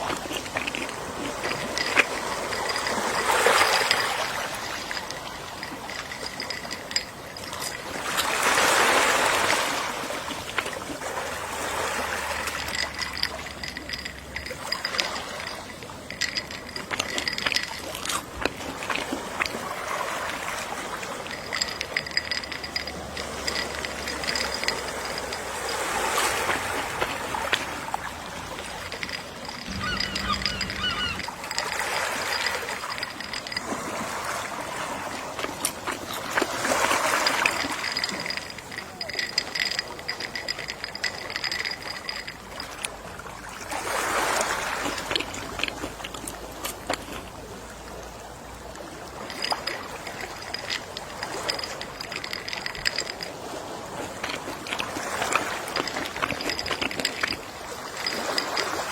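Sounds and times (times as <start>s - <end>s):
sea waves washing ashore: 0.0s - 58.9s
seagull calls: 29.6s - 31.6s.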